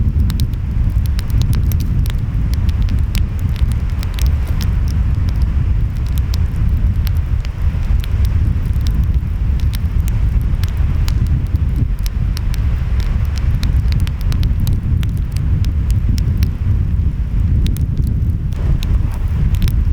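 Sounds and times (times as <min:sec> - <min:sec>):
wind: 0:00.0 - 0:19.9
wood fire crackling: 0:00.0 - 0:19.9.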